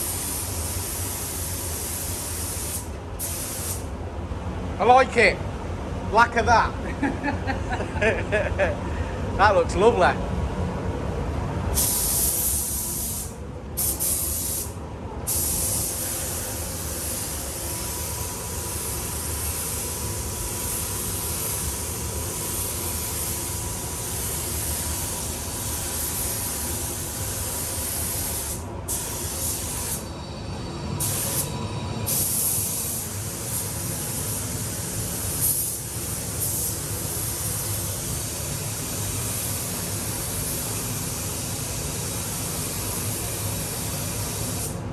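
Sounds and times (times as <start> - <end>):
paint spray gun hissing: 0.0 - 3.8, 11.8 - 14.7, 15.3 - 30.0, 31.0 - 31.5, 32.1 - 44.8.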